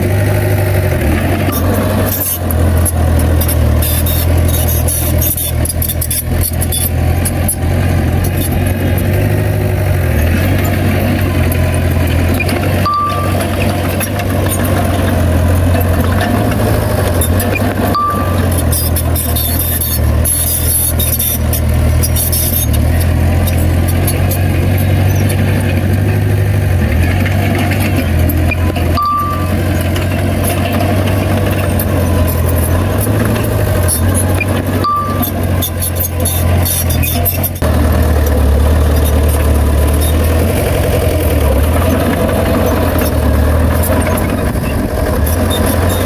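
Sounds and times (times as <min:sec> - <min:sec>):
bulldozer diesel engine droning: 0:00.0 - 0:46.0
short high beeps: 0:12.4 - 0:14.6, 0:17.8 - 0:21.4, 0:28.5 - 0:29.8, 0:33.4 - 0:37.5.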